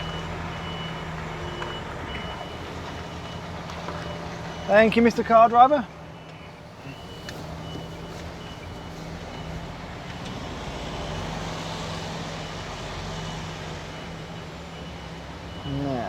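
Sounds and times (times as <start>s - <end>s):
reversing alarm beeping: 0.0s - 11.7s, 12.4s - 16.0s
lorry diesel engine running: 0.0s - 16.0s.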